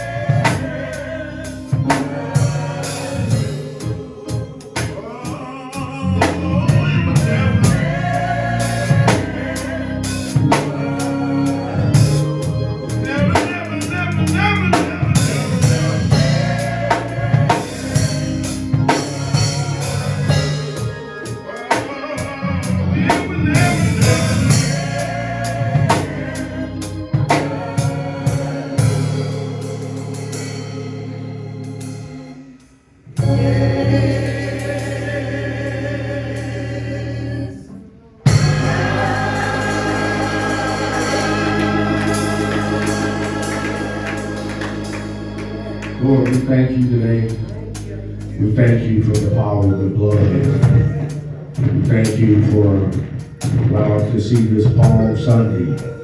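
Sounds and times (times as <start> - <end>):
drum kit: 0.0 - 5.4, 6.2 - 30.8, 38.3 - 46.5
bass: 0.0 - 21.5, 22.2 - 32.4, 33.1 - 56.0
gospel singing: 0.0 - 56.0
keyboard: 0.0 - 56.0.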